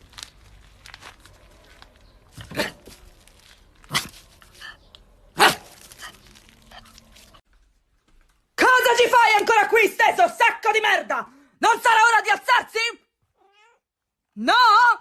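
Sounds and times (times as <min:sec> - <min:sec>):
dog barking: 0:05.3 - 0:05.8.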